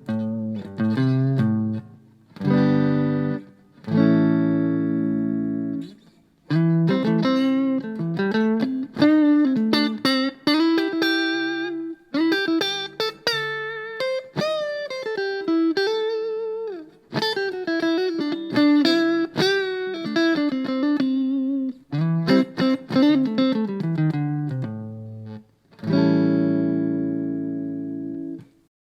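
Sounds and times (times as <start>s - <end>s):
clean electric guitar melody: 0.0s - 28.7s.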